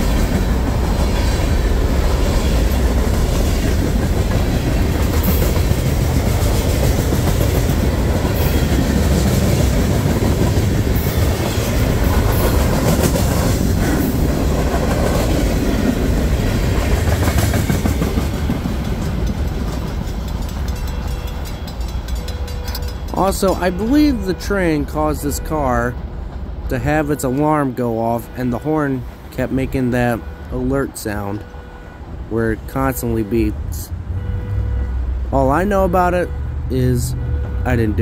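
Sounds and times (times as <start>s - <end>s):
wheels clicking over rail joints: 0.0s - 24.4s
freight train cars rumbling past: 0.0s - 38.0s.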